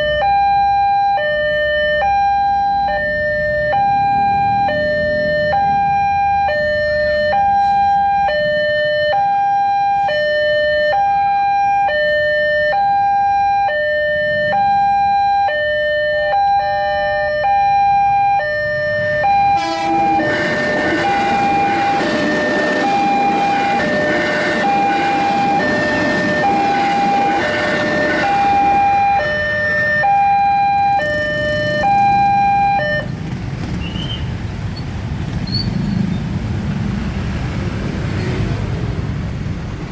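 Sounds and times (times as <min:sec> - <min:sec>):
level crossing alarm two-tone: 0:00.0 - 0:33.1
passing train rumble: 0:03.1 - 0:09.0, 0:16.4 - 0:39.9.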